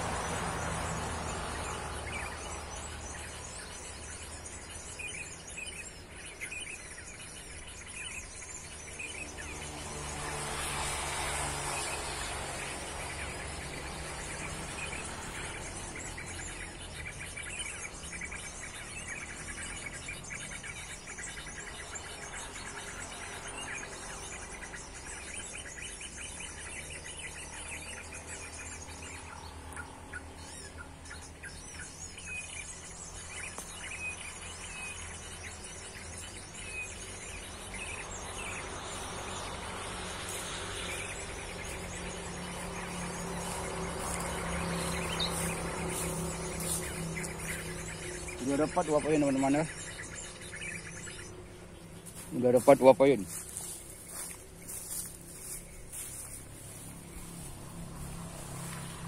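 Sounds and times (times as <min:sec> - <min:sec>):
small birds chirping: 0:00.0 - 0:59.0
high insect drone: 0:32.8 - 0:49.7.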